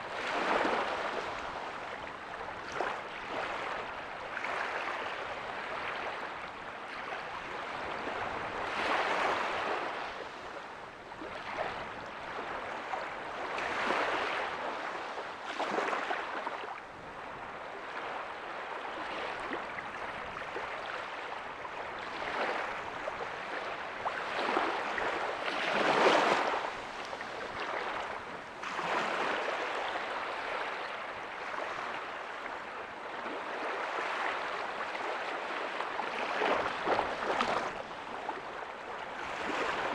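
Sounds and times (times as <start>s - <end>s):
small waves breaking on beach: 0.0s - 39.9s.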